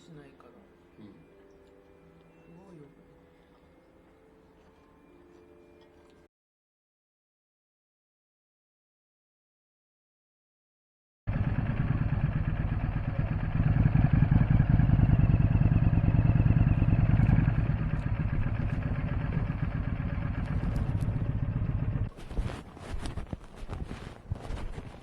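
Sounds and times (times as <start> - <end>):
vehicle engine running: 11.3 - 23.2.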